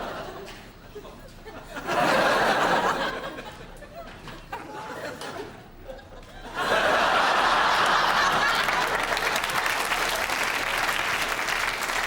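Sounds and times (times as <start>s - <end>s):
audience applause: 7.0s - 12.0s.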